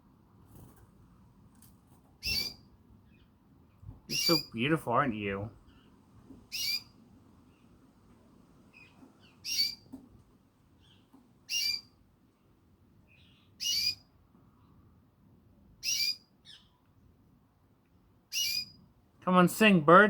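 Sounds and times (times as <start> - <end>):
canary short high calls: 2.2 - 2.6, 4.1 - 4.5, 6.5 - 6.9, 9.4 - 9.8, 11.5 - 11.9, 13.6 - 14.0, 15.8 - 16.7, 18.3 - 18.8
soft faint chirps: 8.6 - 10.0, 10.7 - 12.0, 13.0 - 14.9.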